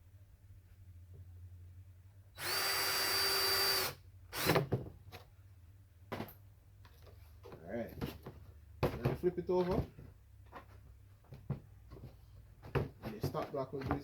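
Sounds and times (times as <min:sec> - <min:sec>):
power drill driving screw: 0:02.4 - 0:04.7.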